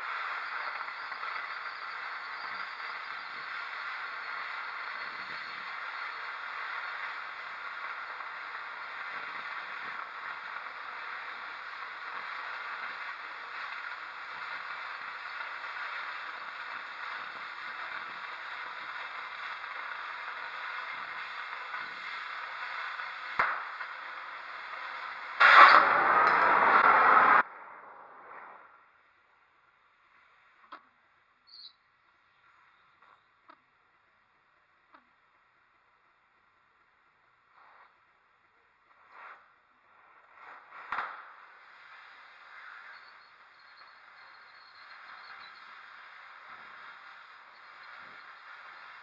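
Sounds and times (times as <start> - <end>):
arc welding crackling sizzle: 0.0 - 27.5, 38.9 - 49.0
loud burst of noise: 0.0 - 29.0.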